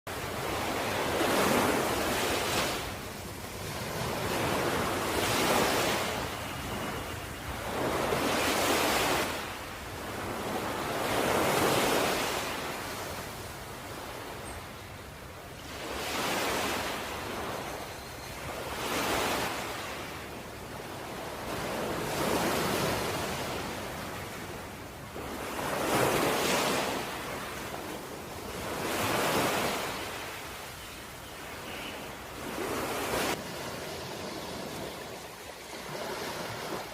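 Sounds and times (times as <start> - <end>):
ocean waves washing in: 18.6 - 36.9.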